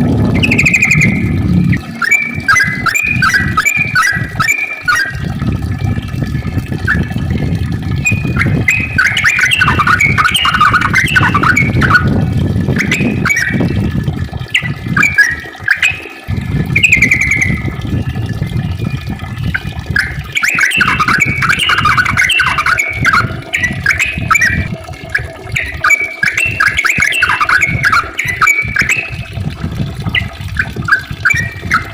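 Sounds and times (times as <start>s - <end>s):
low rumble: 0.0s - 3.6s
bird singing chattering phrases: 0.4s - 5.1s, 8.1s - 12.1s, 19.5s - 24.6s, 25.5s - 29.1s.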